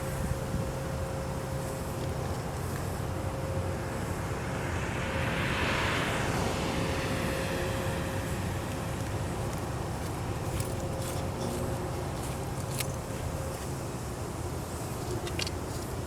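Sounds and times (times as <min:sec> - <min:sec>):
engine rumble with hum: 0:00.0 - 0:16.0
rushing noise: 0:03.7 - 0:10.3.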